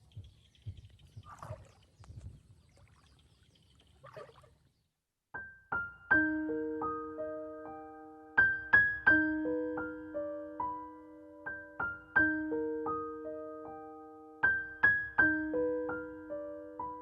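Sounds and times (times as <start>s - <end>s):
piano music: 5.4s - 17.0s.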